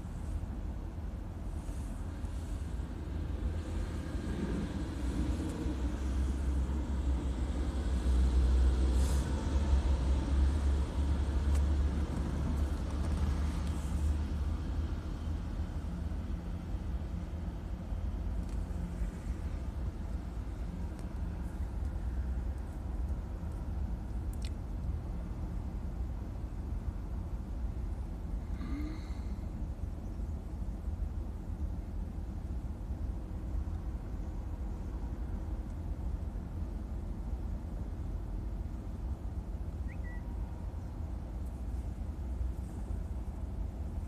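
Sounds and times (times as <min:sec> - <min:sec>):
freight train rumbling past: 0:02.0 - 0:18.0
truck driving by: 0:02.4 - 0:15.6.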